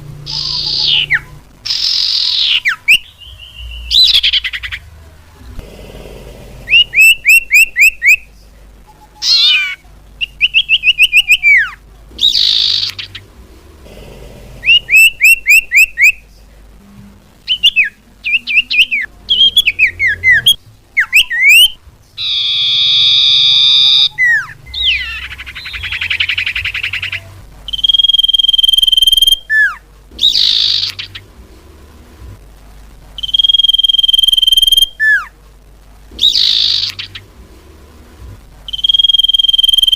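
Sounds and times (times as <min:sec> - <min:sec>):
harsh buzzing bird chatter: 0:00.0 - 0:05.0, 0:05.6 - 0:16.5, 0:17.4 - 0:31.8, 0:33.2 - 0:35.3, 0:36.1 - 0:37.7, 0:38.7 - 0:39.9
bird chirps: 0:00.2 - 0:04.9, 0:06.7 - 0:08.3, 0:08.9 - 0:13.3, 0:14.6 - 0:16.2, 0:17.5 - 0:31.3, 0:33.2 - 0:35.3, 0:36.2 - 0:37.3, 0:38.7 - 0:39.9
long steady bird whistles: 0:00.3 - 0:04.8, 0:06.7 - 0:08.3, 0:08.9 - 0:13.3, 0:14.6 - 0:16.3, 0:17.4 - 0:31.3, 0:33.2 - 0:35.3, 0:36.2 - 0:37.3, 0:38.7 - 0:39.9.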